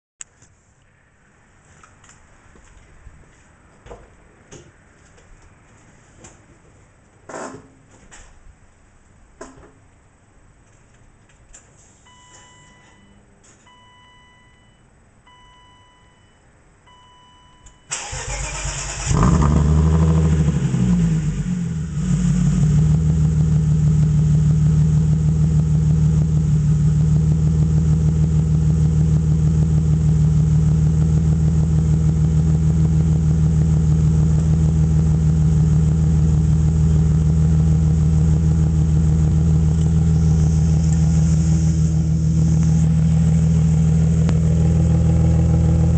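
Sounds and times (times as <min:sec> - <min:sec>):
car engine starting and idling: 0:17.6 - 0:45.9.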